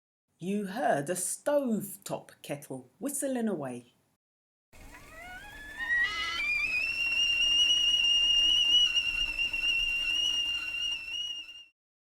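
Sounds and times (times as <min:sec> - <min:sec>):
kettle whistling: 0:04.8 - 0:11.8.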